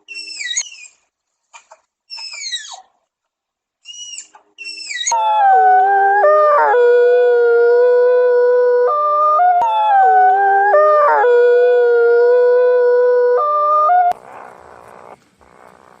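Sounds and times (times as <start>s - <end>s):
dog howling: 5.1s - 14.2s.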